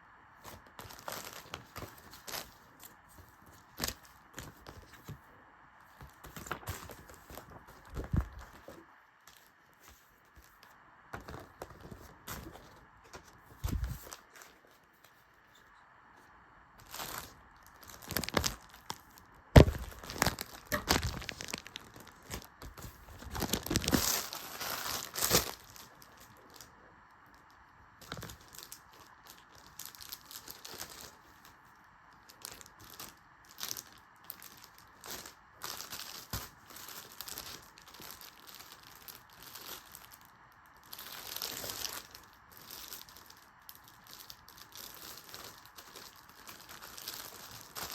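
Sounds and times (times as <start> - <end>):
packaging rustling: 0.4 - 5.2, 5.9 - 15.7, 16.8 - 26.7, 28.0 - 31.6, 32.2 - 47.9
paper tearing and crumpling: 19.6 - 25.8.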